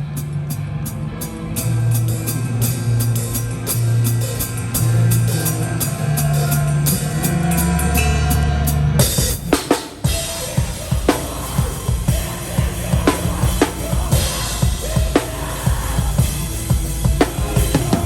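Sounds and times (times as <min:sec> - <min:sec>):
distorted guitars and bass: 0:00.0 - 0:18.0
live metalcore band playing loud: 0:00.0 - 0:18.0
hard drum and cymbal hit: 0:01.6 - 0:18.0
cymbal strokes: 0:09.0 - 0:18.0.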